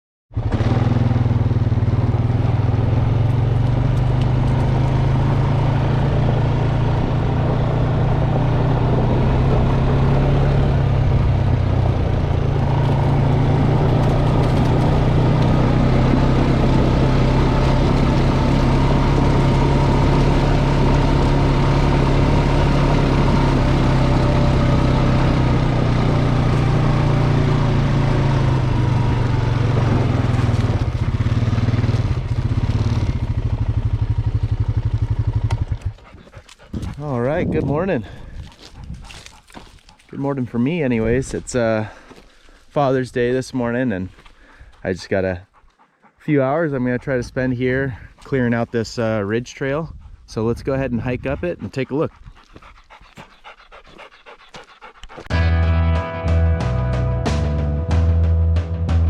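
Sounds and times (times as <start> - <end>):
bulldozer diesel engine running: 0.4 - 36.0.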